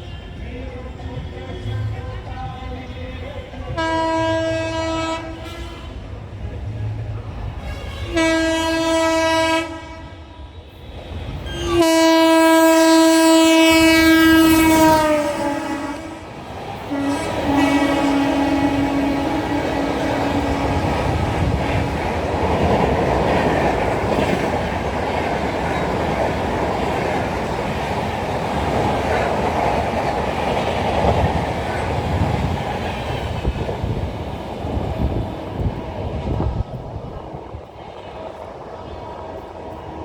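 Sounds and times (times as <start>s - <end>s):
train passing at high speed: 0.0s - 40.0s
train horn: 1.4s - 6.1s, 7.6s - 24.5s.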